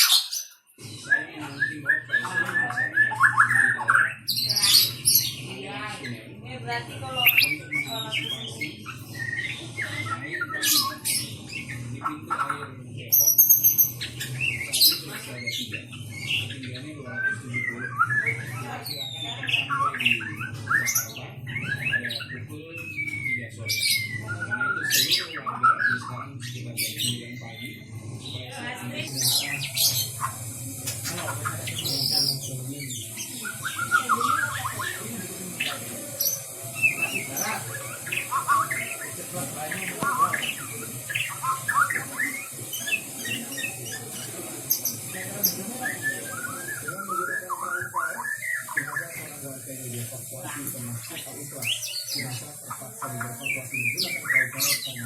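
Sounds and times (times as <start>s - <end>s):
bird singing varied song: 0.0s - 55.0s
bird singing whistled notes: 17.2s - 26.1s, 35.6s - 49.4s.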